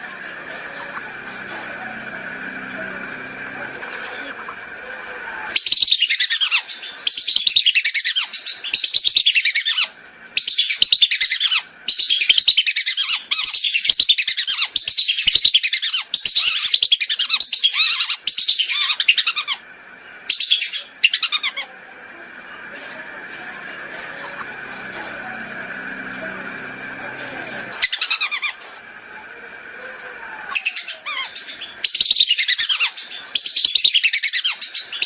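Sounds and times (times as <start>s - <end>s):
whistling ducks calling: 5.4s - 19.6s, 20.2s - 21.8s, 30.4s - 35.0s.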